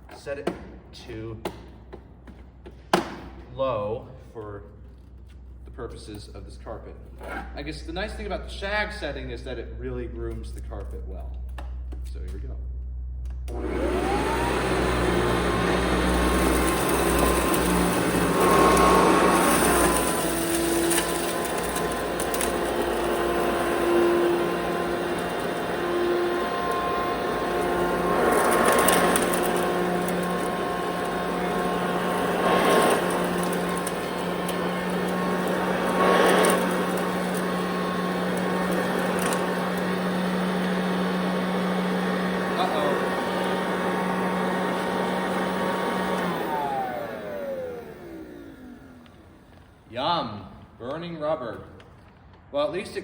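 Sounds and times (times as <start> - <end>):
vacuum cleaner motor whine: 13.4 - 49.9.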